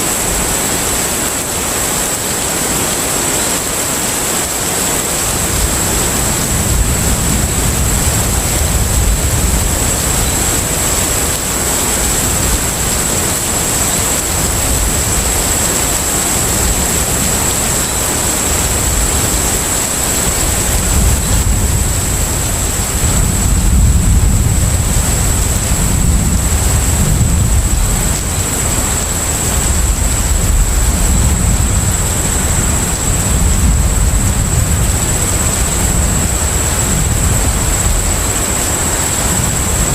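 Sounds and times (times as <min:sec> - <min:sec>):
ship deep rumble: 0:05.2 - 0:39.9.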